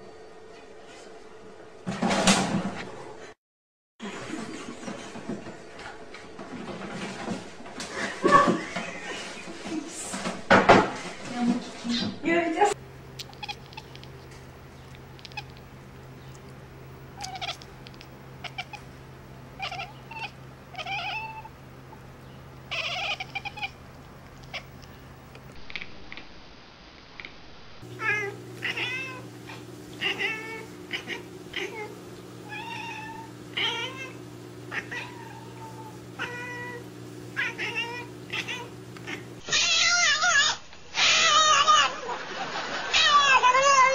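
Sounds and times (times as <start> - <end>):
steady low hum: 11.0 - 39.5
cats meowing: 13.2 - 14.2, 14.9 - 15.7, 17.2 - 18.9, 19.6 - 21.5, 22.7 - 24.9, 28.0 - 36.8, 37.4 - 42.0, 42.9 - 43.9.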